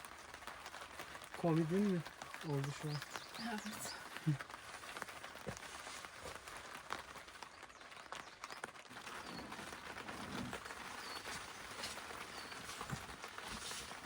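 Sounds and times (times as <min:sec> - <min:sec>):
quiet forest ambience: 0:00.0 - 0:14.0
camping gear clicking and knocking: 0:08.9 - 0:14.0.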